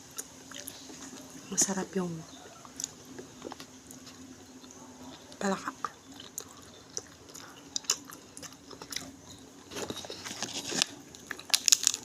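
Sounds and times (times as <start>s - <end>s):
person chewing and crunching: 0.0s - 1.4s, 2.5s - 12.0s.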